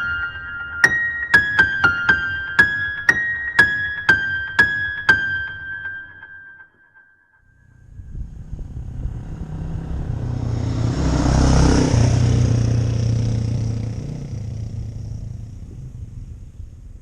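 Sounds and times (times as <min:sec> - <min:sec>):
motorcycle riding past: 0:07.8 - 0:17.0.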